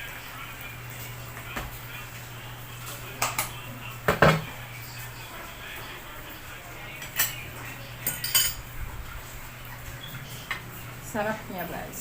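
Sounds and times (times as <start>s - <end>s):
metal spoon clinking on bowl: 8.0s - 8.6s.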